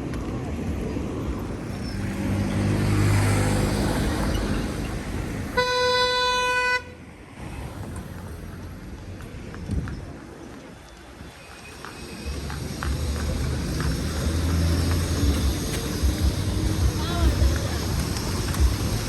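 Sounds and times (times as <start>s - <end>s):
vehicle passing with engine running: 1.3s - 10.3s, 11.0s - 19.0s
vehicle horn blast: 5.5s - 7.0s.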